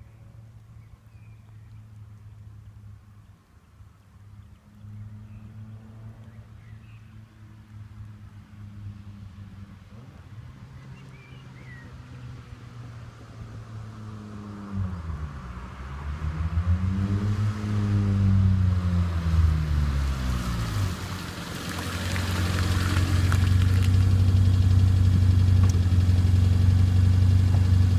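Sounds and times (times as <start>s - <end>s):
car engine and exhaust running: 17.9s - 27.9s.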